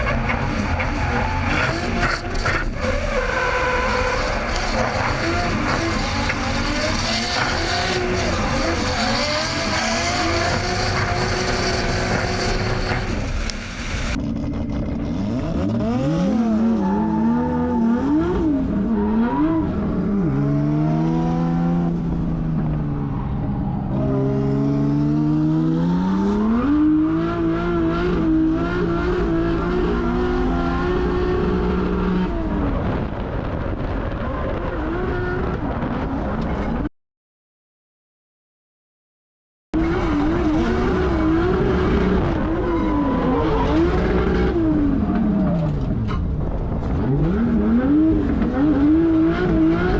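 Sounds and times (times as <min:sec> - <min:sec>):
car engine revving hard: 0:00.0 - 0:22.2, 0:39.8 - 0:45.0, 0:47.1 - 0:49.9.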